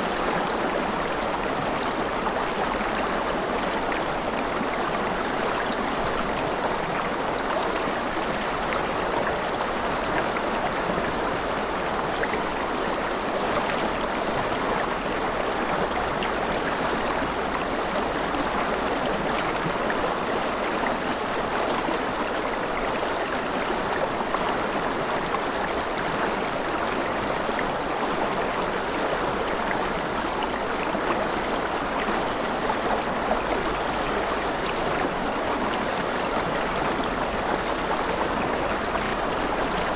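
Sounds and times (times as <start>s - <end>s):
river water flowing and splashing: 0.0s - 39.9s.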